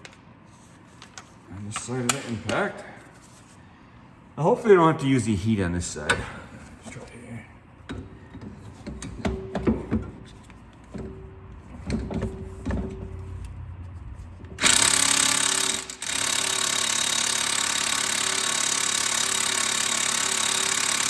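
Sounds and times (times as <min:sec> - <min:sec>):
impact wrench hammering: 0:14.6 - 0:21.0.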